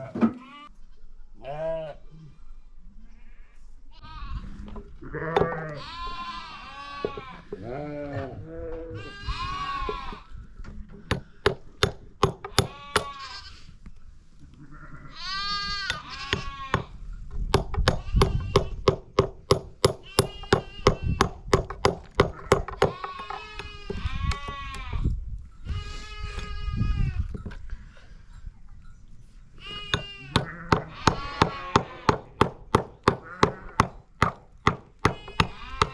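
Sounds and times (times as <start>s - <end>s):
sheep and goats bleating: 0.0s - 0.8s, 1.4s - 2.1s, 3.1s - 10.3s, 12.5s - 13.7s, 14.4s - 17.0s, 20.0s - 21.4s, 22.2s - 27.4s, 29.6s - 32.4s, 33.1s - 34.0s, 35.0s - 35.9s
sharp knocks: 11.1s - 13.1s, 17.5s - 23.4s.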